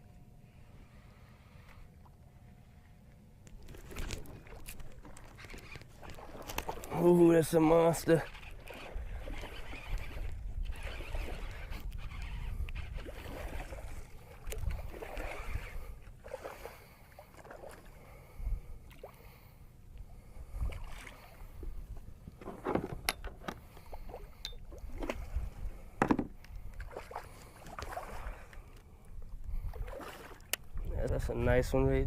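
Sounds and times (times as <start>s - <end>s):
water splashing around kayak: 3.6s - 19.4s, 20.2s - 31.1s
wind rumble on microphone: 8.3s - 16.0s, 18.3s - 18.8s, 20.3s - 23.1s, 24.1s - 27.0s, 29.1s - 30.0s, 30.6s - 32.0s
knocks on kayak hull: 26.0s - 26.4s.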